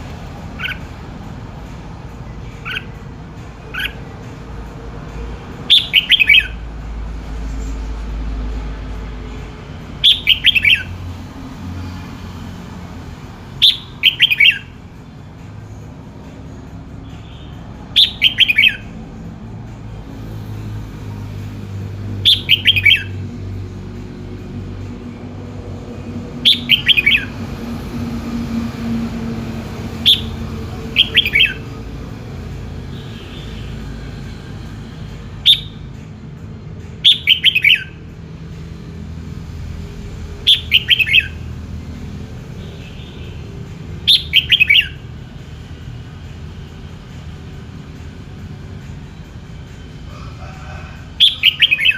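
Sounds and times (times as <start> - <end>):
bird singing: 2.3 - 4.2, 5.6 - 6.6, 9.9 - 11.2, 13.5 - 14.8, 16.5 - 19.0, 22.1 - 23.3, 25.3 - 33.9, 35.3 - 36.1, 37.0 - 38.0, 40.2 - 45.2, 51.0 - 51.9.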